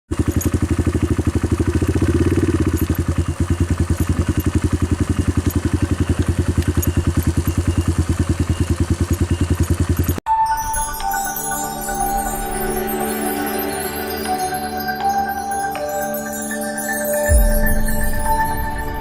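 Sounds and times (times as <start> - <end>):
small engine idling: 0.1 - 10.2.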